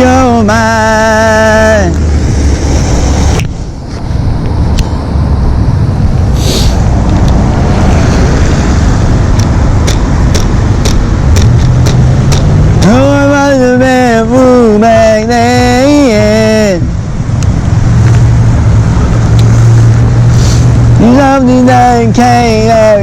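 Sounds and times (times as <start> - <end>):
wet road noise: 0.0 - 23.0
wind rush: 1.1 - 22.2
sharp ticks: 9.3 - 13.0.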